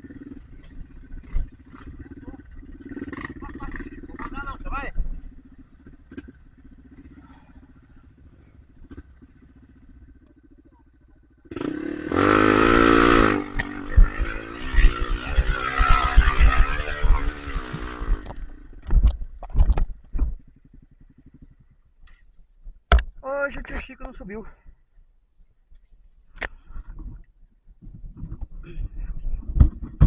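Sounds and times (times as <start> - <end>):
dirt bike engine revving: 0.0 - 18.9.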